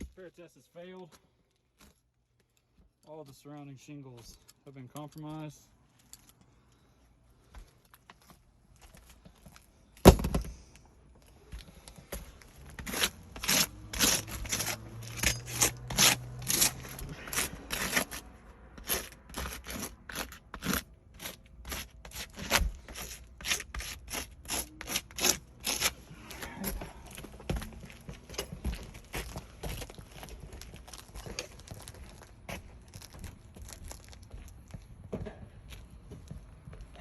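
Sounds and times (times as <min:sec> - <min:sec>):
scraping strokes on roof shingles: 0:12.1 - 0:26.6.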